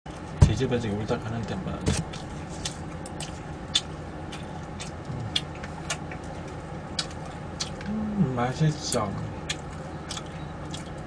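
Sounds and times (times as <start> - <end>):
person chewing food: 1.9 - 8.2, 8.9 - 11.0.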